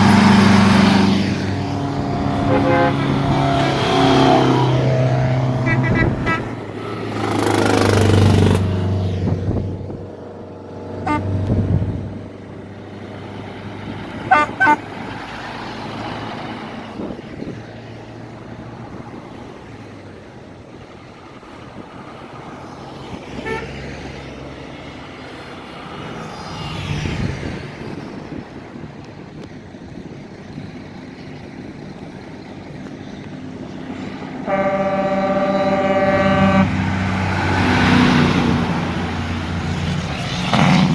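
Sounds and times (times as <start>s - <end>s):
long horn blast: 0.0s - 8.8s, 11.0s - 12.1s, 14.2s - 15.1s, 23.4s - 24.0s, 34.3s - 39.1s
truck engines rumbling: 0.0s - 40.9s
short horn toots: 2.4s - 3.3s, 5.6s - 6.6s, 11.1s - 11.5s, 14.3s - 14.9s, 23.4s - 23.7s, 34.5s - 36.8s.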